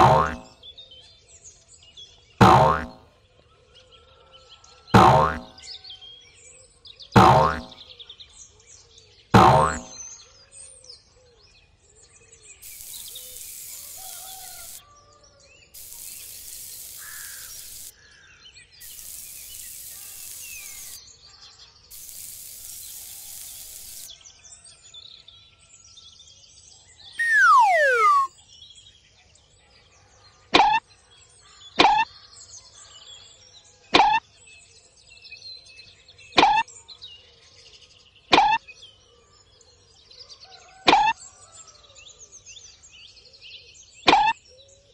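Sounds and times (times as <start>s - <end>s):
bursts of hissing: 0.0s - 0.5s, 5.0s - 5.5s, 7.2s - 7.7s, 9.4s - 9.9s, 12.6s - 14.8s, 15.8s - 17.9s, 18.8s - 21.0s, 21.9s - 24.1s, 27.2s - 28.3s
sharp falling pops: 0.0s - 0.5s, 2.4s - 3.0s, 5.0s - 5.5s, 7.2s - 7.8s, 9.4s - 9.9s, 27.2s - 28.3s, 31.8s - 32.0s, 38.3s - 38.6s
faint bird chirping: 27.2s - 28.3s
loud falling whistle: 27.2s - 28.3s.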